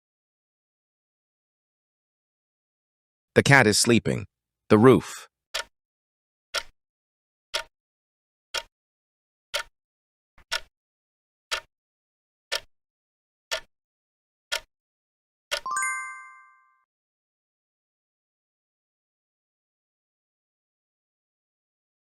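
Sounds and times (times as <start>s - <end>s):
clock ticking: 5.5s - 5.7s, 6.5s - 6.8s, 7.5s - 7.7s, 8.5s - 8.7s, 9.5s - 9.7s, 10.4s - 10.7s, 11.5s - 11.7s, 15.5s - 15.8s
ringing bell chime: 15.7s - 16.8s.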